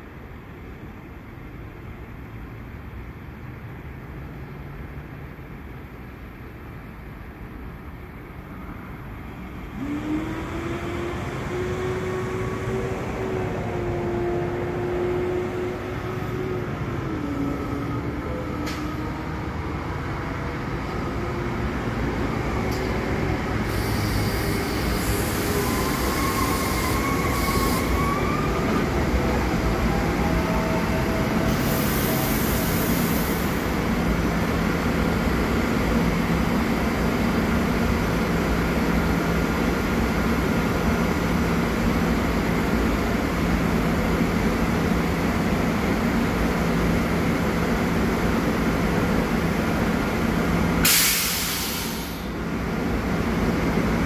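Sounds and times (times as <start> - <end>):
train running noise: 9.0 - 54.0
high squeals and hissing: 23.7 - 28.8.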